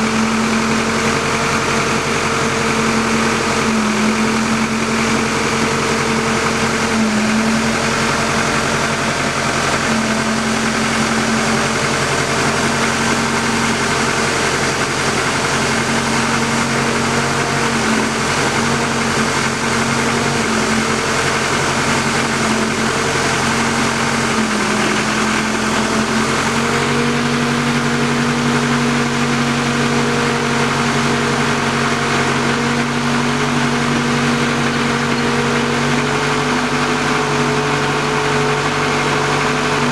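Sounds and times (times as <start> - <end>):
drilling rig engine running: 0.0 - 39.9.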